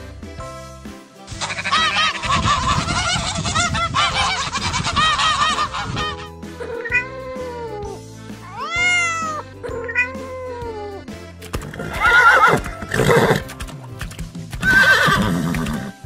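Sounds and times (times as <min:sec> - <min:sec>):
background music: 0:00.0 - 0:16.0
geese honking: 0:01.4 - 0:06.3
cat meowing: 0:06.8 - 0:07.2, 0:08.5 - 0:10.8.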